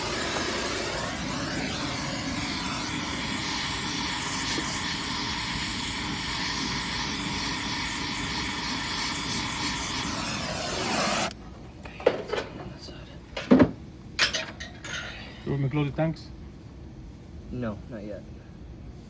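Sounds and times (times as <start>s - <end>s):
gas torch flame hissing: 0.0s - 11.4s.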